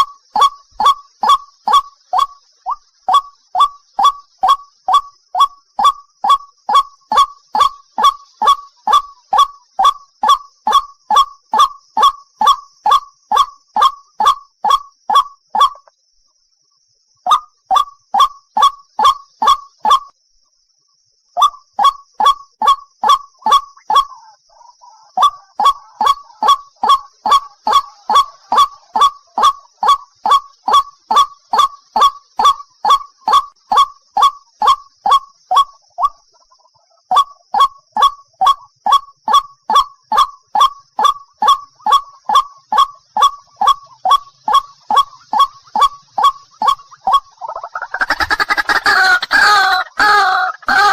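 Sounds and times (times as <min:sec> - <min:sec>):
bird harsh honking calls: 0:47.9 - 0:50.9.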